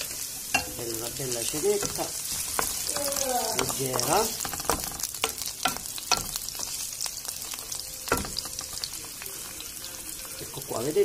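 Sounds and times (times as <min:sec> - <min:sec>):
wooden spoon scraping a pan: 0:00.0 - 0:05.8
vegetables sizzling in oil: 0:00.0 - 0:11.0.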